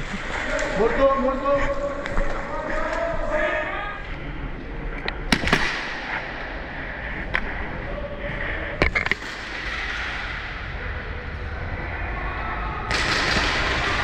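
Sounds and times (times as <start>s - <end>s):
airsoft guns firing: 5.3s - 6.6s, 12.9s - 14.0s.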